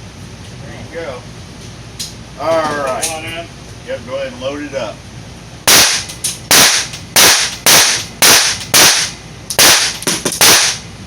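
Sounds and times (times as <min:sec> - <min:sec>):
handgun shots: 0:05.7 - 0:10.8.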